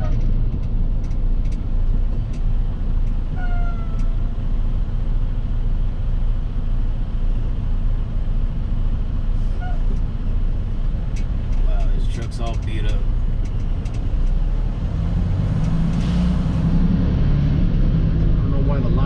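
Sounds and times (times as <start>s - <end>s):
truck engine low rumble: 0.0s - 19.0s
sharp clicks: 11.1s - 14.4s.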